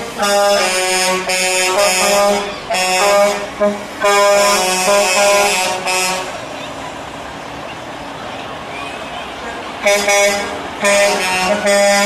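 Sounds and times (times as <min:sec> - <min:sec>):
truck air horn blasts: 0:00.0 - 0:06.5, 0:09.7 - 0:12.0.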